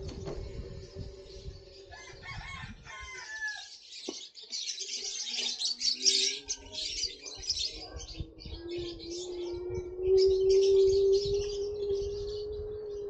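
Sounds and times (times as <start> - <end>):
bird calling: 5.3 - 13.0.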